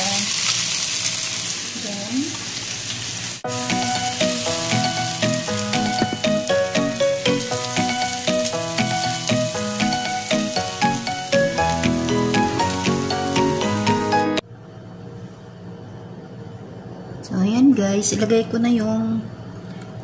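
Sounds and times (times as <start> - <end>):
chicken sizzling in a frying pan: 0.0 - 14.2
plucked melody background music: 3.4 - 14.4.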